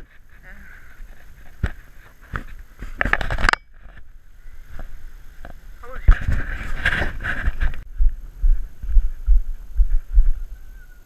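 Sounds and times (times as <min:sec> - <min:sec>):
bicycle rattling over rough trail: 0:00.0 - 0:07.8.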